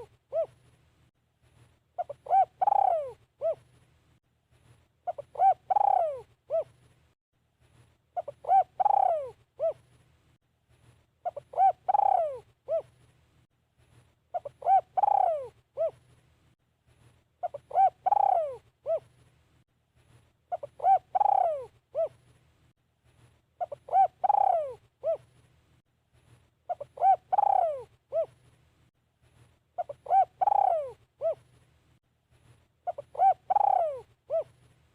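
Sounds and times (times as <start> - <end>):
dove cooing: 0.0 - 0.6, 2.0 - 3.7, 5.0 - 6.8, 8.2 - 9.8, 11.2 - 13.0, 14.3 - 16.0, 17.4 - 19.1, 20.5 - 22.2, 23.6 - 25.3, 26.7 - 28.4, 29.8 - 31.5, 32.8 - 34.6.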